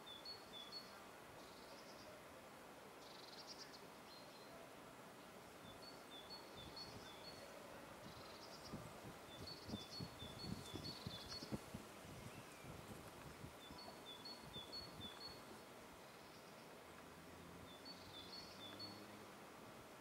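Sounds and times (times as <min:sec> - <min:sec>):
songbirds calling faintly: 0:00.0 - 0:20.0.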